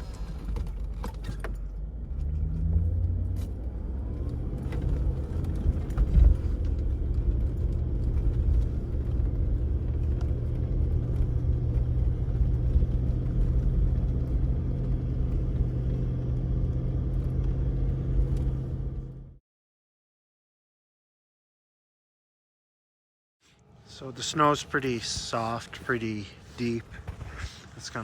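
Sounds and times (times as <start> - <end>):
vehicle engine running: 0.0 - 19.4.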